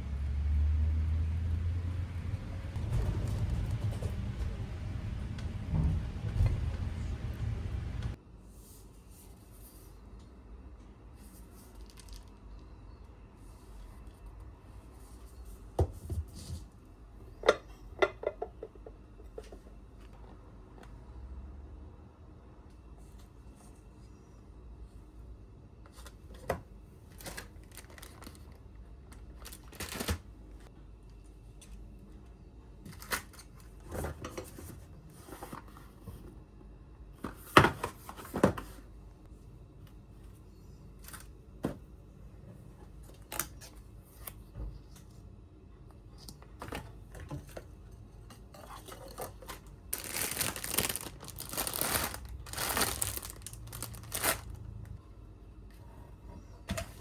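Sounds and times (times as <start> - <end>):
light knocks and rustles: 1.8 - 8.2
packaging crinkling and tearing: 27.1 - 28.6, 29.2 - 30.2, 49.9 - 54.8.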